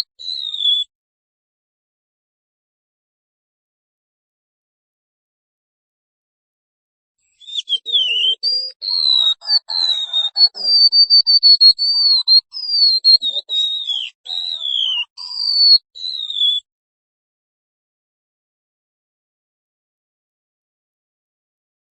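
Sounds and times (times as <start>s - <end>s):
bird singing high whistled notes: 0.0s - 0.9s, 7.3s - 16.7s.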